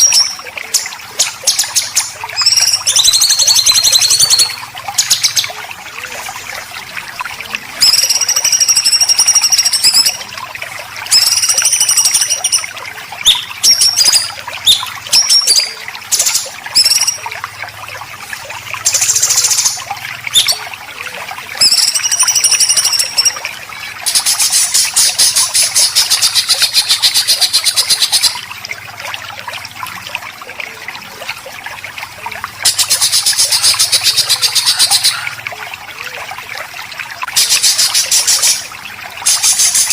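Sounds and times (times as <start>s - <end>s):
running water trickling: 0.0s - 39.9s
songbird whistled calls: 1.2s - 5.5s, 7.8s - 10.2s, 11.1s - 17.3s, 18.9s - 20.6s, 21.6s - 23.4s.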